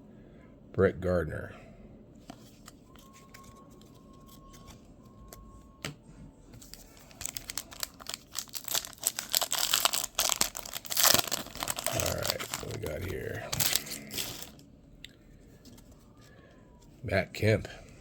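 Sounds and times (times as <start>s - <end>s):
plastic wrapper tearing and crinkling: 6.6s - 14.6s.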